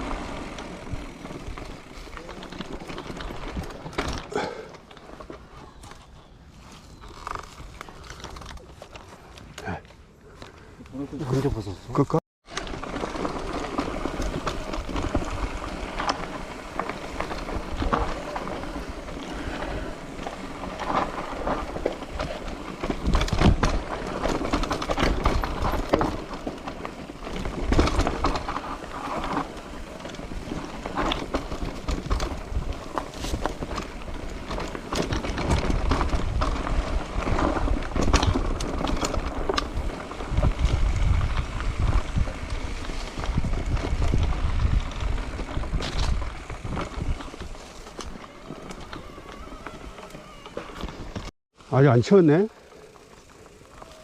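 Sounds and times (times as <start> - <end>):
wind buffeting microphone: 30.3 - 51.3.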